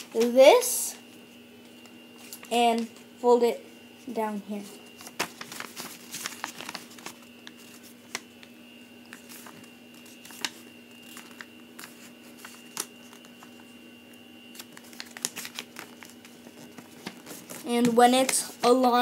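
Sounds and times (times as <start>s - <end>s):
paper rustling and crinkling: 4.6s - 8.5s, 9.1s - 13.7s, 14.5s - 18.9s.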